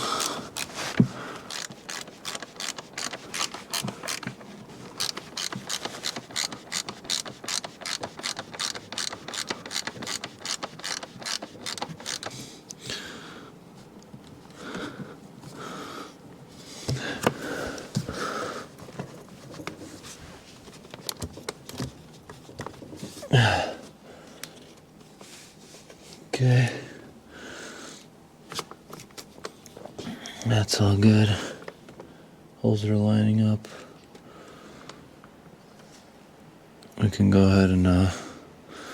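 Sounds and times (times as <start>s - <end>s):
scraping and handling sounds: 0.0s - 12.7s, 16.6s - 23.3s
hand ratchet clicking: 1.5s - 4.4s, 5.0s - 12.4s.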